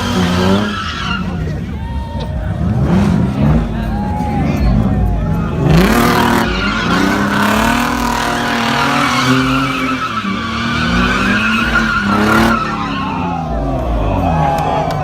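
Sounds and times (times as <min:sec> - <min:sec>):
tyres squealing: 0:00.0 - 0:01.7, 0:04.4 - 0:14.3
car engine revving: 0:00.0 - 0:15.0.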